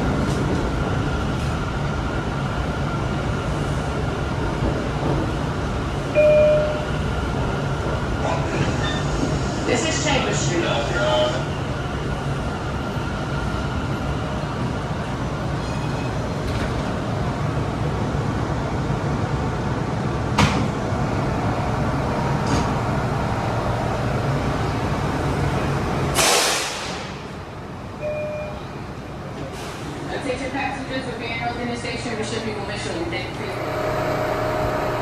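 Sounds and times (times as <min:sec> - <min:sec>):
subway car rumbling on tracks: 0:00.0 - 0:35.0
loud air hiss: 0:26.1 - 0:27.2.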